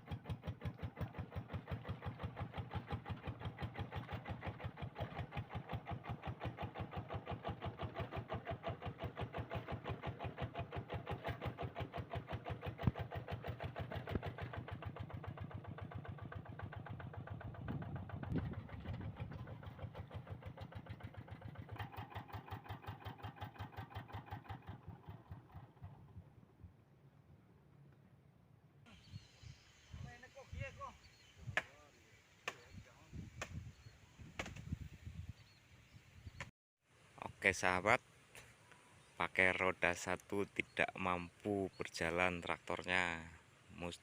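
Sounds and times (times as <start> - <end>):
diesel engine thumping: 0.1 - 26.1.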